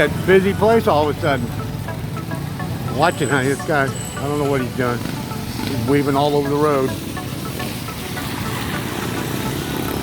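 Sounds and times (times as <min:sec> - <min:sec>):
vehicle engines in traffic jam: 0:00.0 - 0:10.0.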